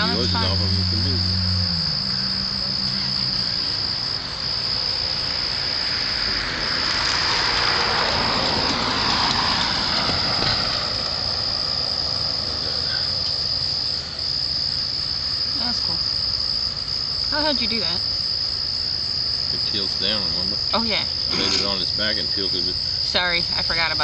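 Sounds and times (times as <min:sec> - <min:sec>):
rushing noise: 0:00.0 - 0:14.2
crickets trilling: 0:00.0 - 0:24.0.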